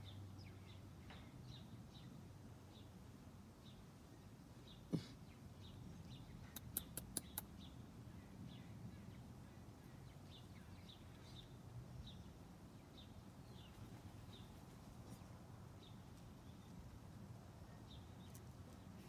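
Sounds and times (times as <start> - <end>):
quick sharp clicks: 6.5 - 7.5.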